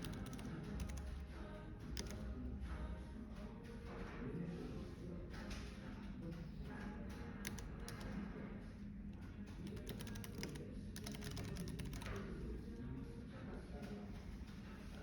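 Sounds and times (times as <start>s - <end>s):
typing on computer keyboard: 0.0s - 2.5s, 5.3s - 8.3s, 9.4s - 12.4s.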